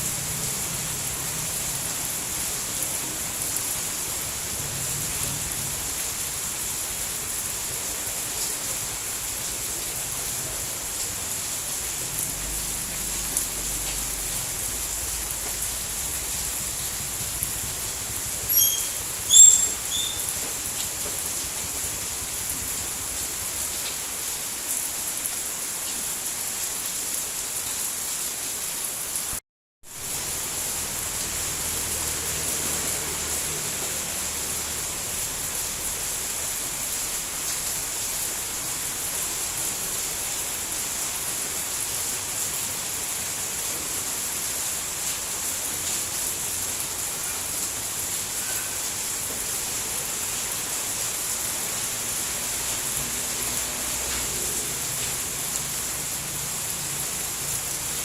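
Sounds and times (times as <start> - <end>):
steady rain hiss: 0.0 - 58.0
short high chirps: 18.5 - 20.3.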